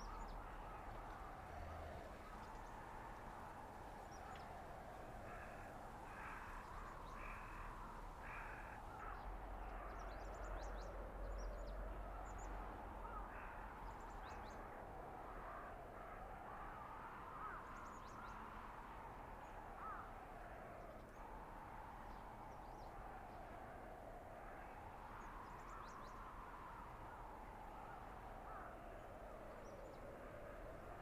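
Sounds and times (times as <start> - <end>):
wind howling: 0.0 - 31.0.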